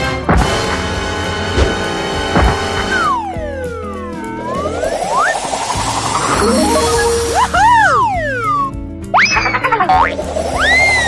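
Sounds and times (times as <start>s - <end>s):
background music: 0.0s - 11.0s
whistle-like glide: 0.0s - 11.0s
cartoon swoop with boing: 6.2s - 8.4s.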